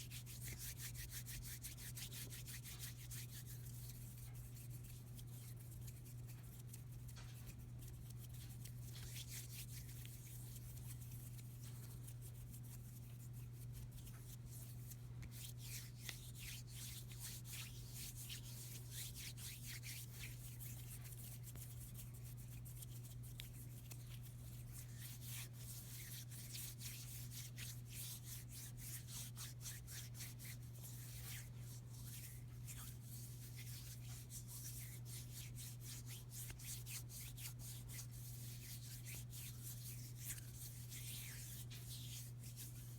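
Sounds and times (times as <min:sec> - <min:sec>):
hands rubbing together: 0:00.1 - 0:42.9.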